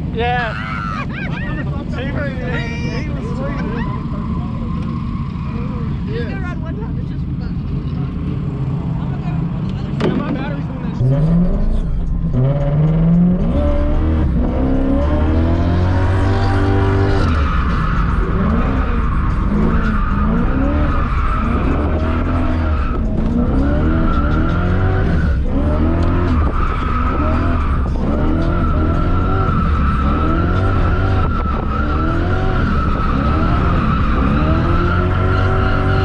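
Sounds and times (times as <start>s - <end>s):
car engine revving: 7.3s - 36.0s.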